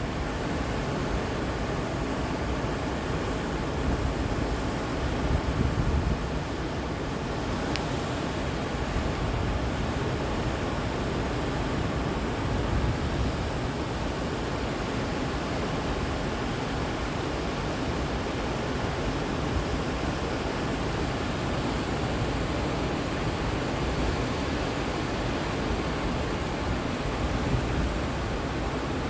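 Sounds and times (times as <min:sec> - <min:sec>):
whitewater rushing: 0:13.7 - 0:29.0.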